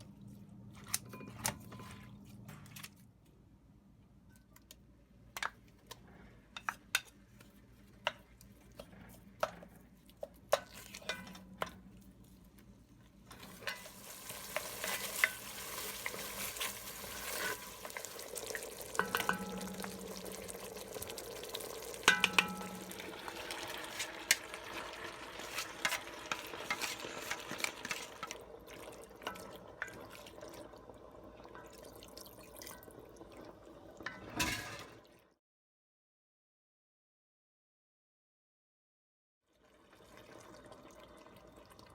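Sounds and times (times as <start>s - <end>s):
stirring scrapes: 0.7s - 3.0s, 6.6s - 12.4s, 13.3s - 20.4s, 22.1s - 28.4s
food sizzling in a pan: 13.4s - 29.8s
utensil tapping a pan: 18.9s - 20.6s, 22.0s - 23.2s.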